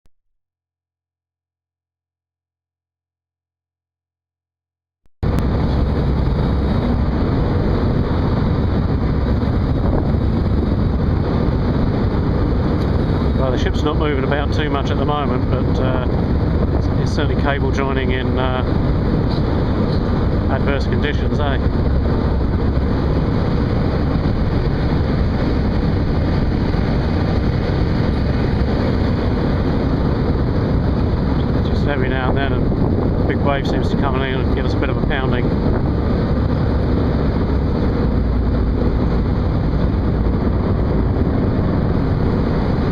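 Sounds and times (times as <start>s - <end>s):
loud low rumbling on ship: 5.2s - 42.9s
rough sea: 5.2s - 42.9s
wind: 5.2s - 42.9s.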